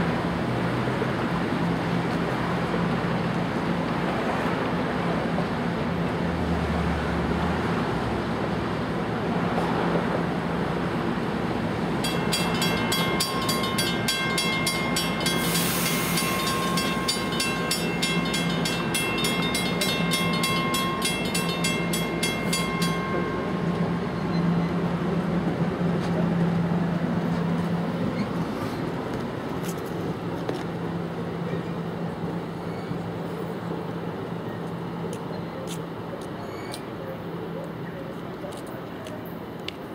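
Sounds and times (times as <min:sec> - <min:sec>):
train pulling out humming: 0:00.0 - 0:39.9
level crossing bell ringing: 0:12.1 - 0:23.8.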